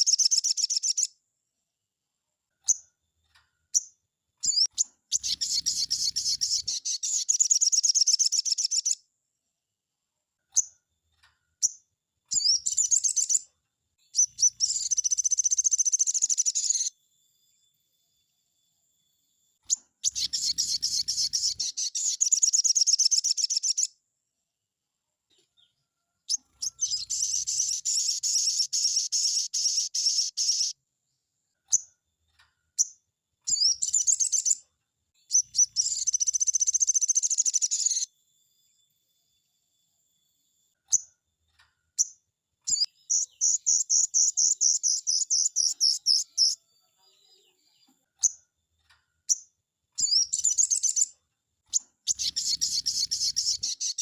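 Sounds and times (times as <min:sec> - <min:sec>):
bird singing high phrases: 0:00.0 - 0:01.2, 0:03.7 - 0:09.0, 0:11.6 - 0:17.0, 0:19.6 - 0:24.0, 0:25.6 - 0:30.8, 0:32.8 - 0:38.1, 0:42.0 - 0:48.4, 0:49.3 - 0:54.0
single bird chirps: 0:03.7 - 0:09.0, 0:11.6 - 0:13.5, 0:14.1 - 0:17.0, 0:19.6 - 0:23.9, 0:26.3 - 0:30.8, 0:32.8 - 0:34.6, 0:35.2 - 0:38.1, 0:42.0 - 0:48.4, 0:49.3 - 0:54.0.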